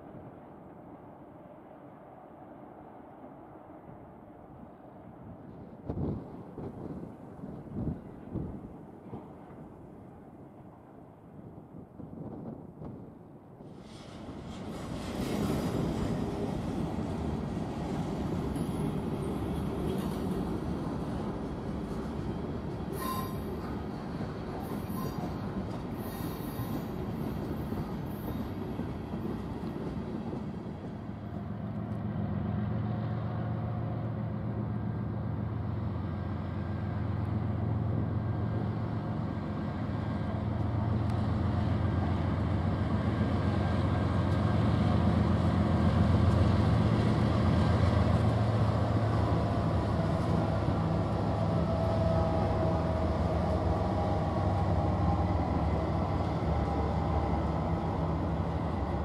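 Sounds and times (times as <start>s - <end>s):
train running noise: 11.8s - 59.0s
locomotive engine drone: 15.7s - 59.0s.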